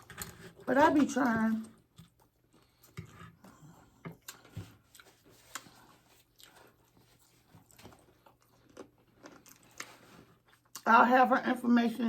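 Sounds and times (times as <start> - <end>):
chewing crispy food: 1.6 - 10.9.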